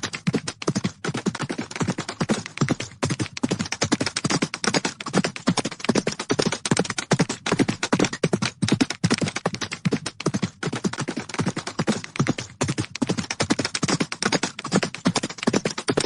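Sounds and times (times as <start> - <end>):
horses galloping: 0.0 - 16.0.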